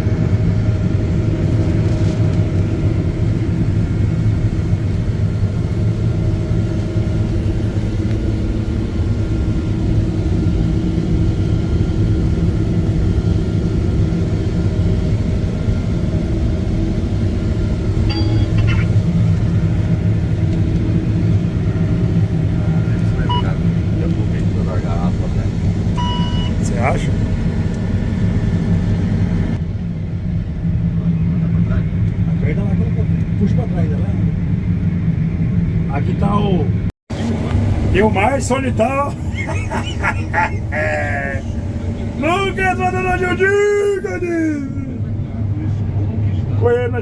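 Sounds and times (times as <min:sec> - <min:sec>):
farm machine engine rumbling: 0:00.0 - 0:29.6, 0:37.1 - 0:45.8
high beeps: 0:18.0 - 0:19.0, 0:23.3 - 0:23.6, 0:26.0 - 0:26.6.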